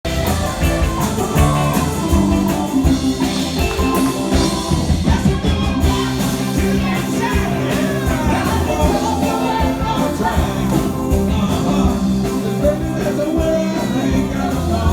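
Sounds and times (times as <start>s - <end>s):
guitar: 0.0s - 14.9s
rock band playing: 0.0s - 14.9s
steady drum beat: 0.0s - 14.9s.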